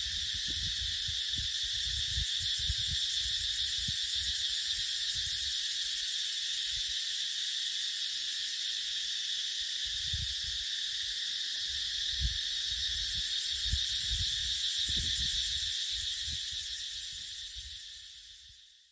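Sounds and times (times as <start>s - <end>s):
wind buffeting microphone: 0.0s - 4.3s, 12.2s - 15.6s
cicadas droning: 0.0s - 18.9s.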